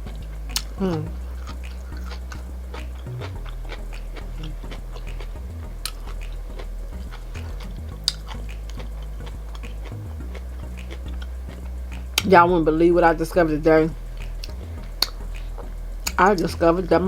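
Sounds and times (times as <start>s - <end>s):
person chewing: 0.0s - 12.3s
sharp mouth smacks: 0.5s - 6.7s, 7.4s - 10.1s.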